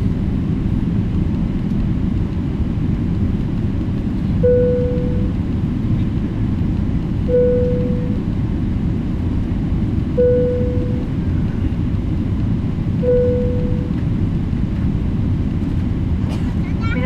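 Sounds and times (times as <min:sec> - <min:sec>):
aircraft cabin rumble: 0:00.0 - 0:17.0
single-tone cabin chime: 0:07.3 - 0:08.2, 0:10.2 - 0:11.0, 0:13.0 - 0:13.9.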